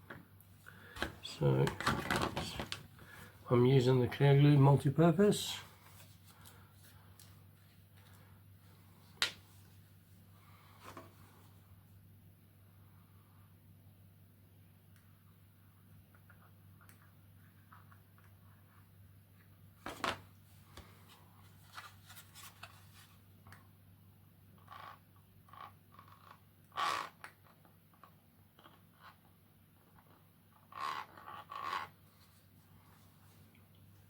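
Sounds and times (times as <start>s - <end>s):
plastic parts clattering: 1.0s - 2.9s.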